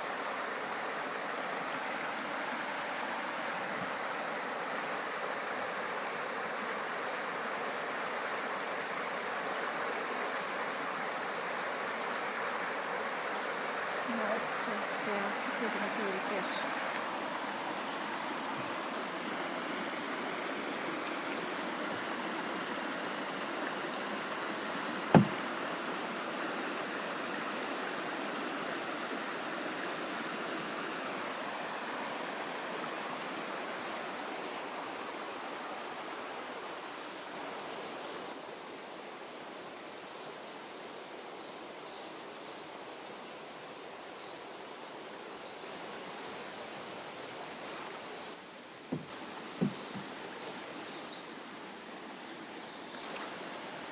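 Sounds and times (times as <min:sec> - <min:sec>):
river water rippling over rocks: 0:00.0 - 0:40.4, 0:43.0 - 0:53.9
sharp knock: 0:25.2 - 0:25.4.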